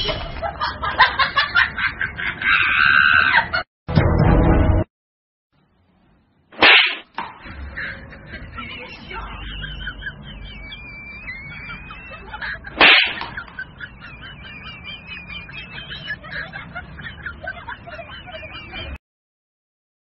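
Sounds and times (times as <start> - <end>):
birds chirping and warbling: 6.6 - 19.0.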